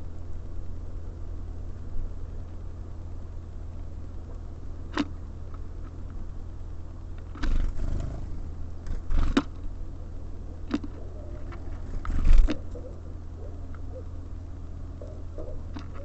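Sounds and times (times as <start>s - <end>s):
steady low hum: 0.0s - 16.0s
wings fluttering and rustling: 7.3s - 9.7s, 10.6s - 14.1s.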